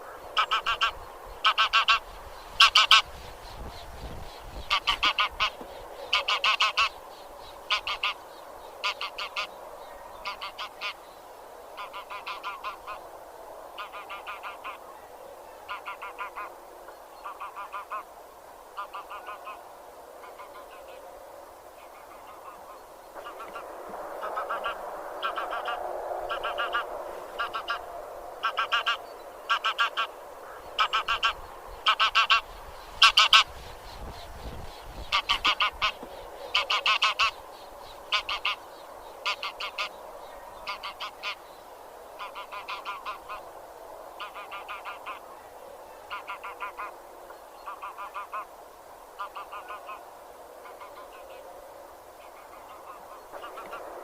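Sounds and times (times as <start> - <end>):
geese honking: 0.0 - 3.1, 4.6 - 7.0, 7.7 - 8.2, 8.8 - 9.5, 10.2 - 11.0, 11.8 - 13.0, 13.8 - 14.8, 15.7 - 16.5, 17.2 - 18.1, 18.8 - 19.6, 21.9 - 33.5, 35.0 - 37.4, 38.0 - 38.6, 39.2 - 40.0, 40.6 - 41.4, 42.2 - 43.4, 44.2 - 45.2, 46.1 - 46.9, 47.7 - 48.5, 49.2 - 50.0
flock calling: 0.0 - 3.7, 4.4 - 7.0, 7.6 - 8.2, 21.8 - 37.4, 38.0 - 40.0.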